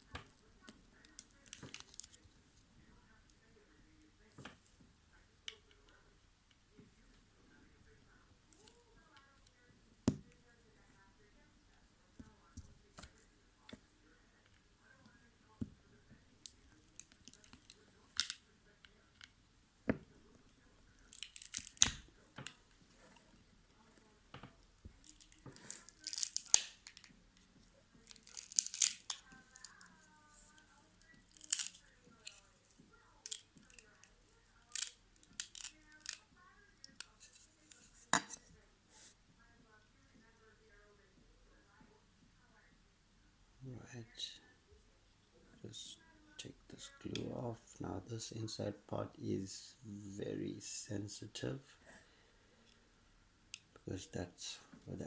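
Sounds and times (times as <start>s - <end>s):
plastic crackling: 0.0s - 2.3s, 20.9s - 38.5s
plastic snapping: 21.1s - 22.6s, 24.3s - 27.2s, 28.0s - 29.8s, 31.0s - 32.4s, 34.7s - 36.2s.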